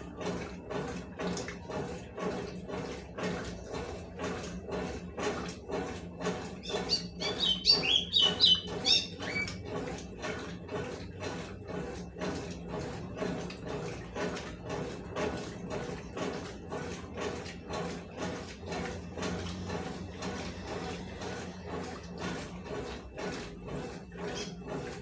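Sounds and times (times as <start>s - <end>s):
swishing of wash load: 0.0s - 25.0s
washing machine motor hum: 0.0s - 25.0s
high chirping squeaks: 6.6s - 9.5s.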